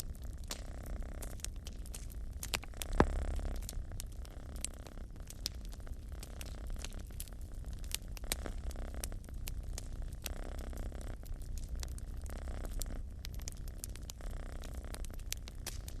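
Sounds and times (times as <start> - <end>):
cat purring: 0.0 - 16.0
wood fire crackling and popping: 0.0 - 16.0.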